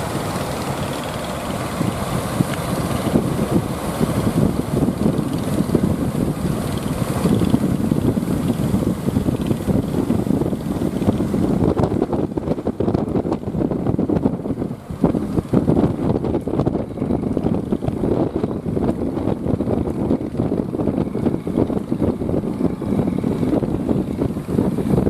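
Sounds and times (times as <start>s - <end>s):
boat engine running: 0.0s - 25.0s
wind buffeting microphone: 0.0s - 25.0s.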